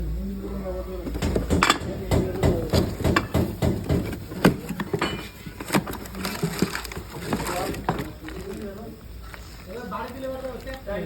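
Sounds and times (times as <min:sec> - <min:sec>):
sharp knocks and clatters: 0:01.1 - 0:08.1.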